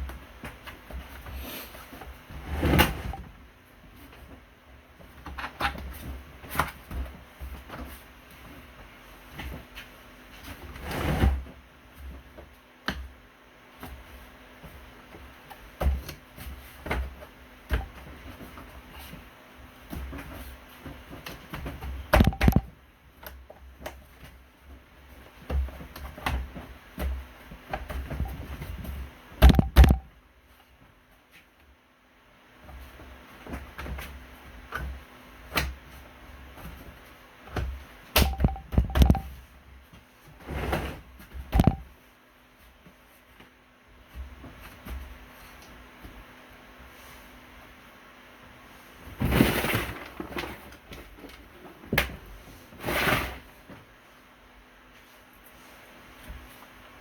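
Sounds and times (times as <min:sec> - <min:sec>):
knocks and clicks: 0:22.2 - 0:22.7, 0:29.4 - 0:30.1, 0:38.2 - 0:39.3, 0:41.6 - 0:41.8
sharp knocks: 0:29.4 - 0:30.1.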